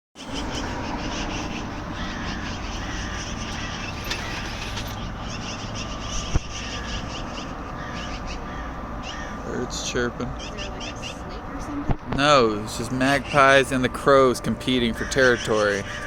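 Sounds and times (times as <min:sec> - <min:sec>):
steady low rumble: 0:00.2 - 0:09.1
magpies and crows calling: 0:00.2 - 0:11.8, 0:12.7 - 0:16.0.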